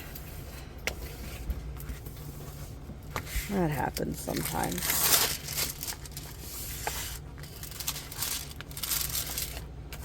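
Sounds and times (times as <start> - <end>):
low steady hum: 0.0 - 10.0
plastic packaging rustling: 3.5 - 10.0.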